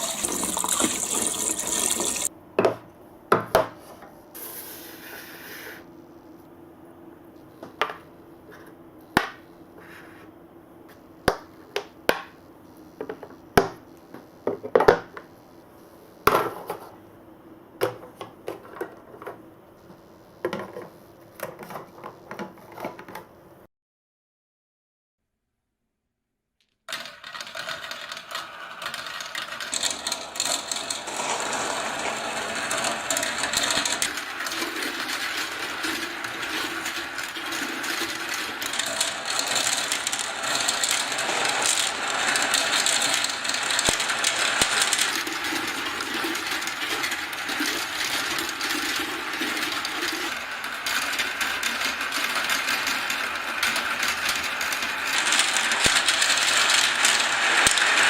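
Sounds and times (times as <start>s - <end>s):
balls clattering down plastic track: 0.0s - 2.3s, 26.9s - 58.0s.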